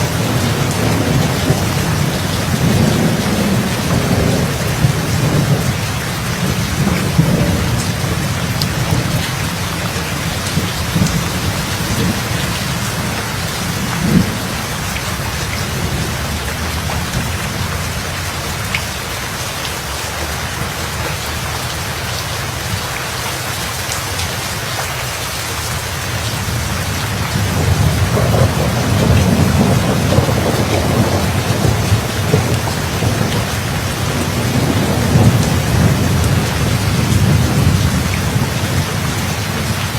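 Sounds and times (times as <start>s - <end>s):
thunder clap: 0.0s - 18.3s, 26.3s - 39.9s
rolling thunder: 0.0s - 18.8s, 26.2s - 39.9s
steady rain: 0.0s - 39.9s.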